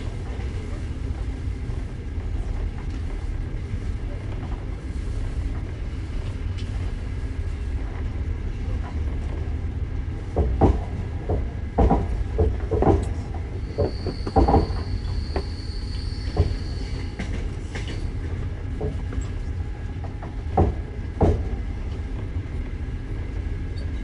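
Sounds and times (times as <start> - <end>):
train interior rumble: 0.0 - 24.0
wheels clacking over rail joints: 10.2 - 22.3.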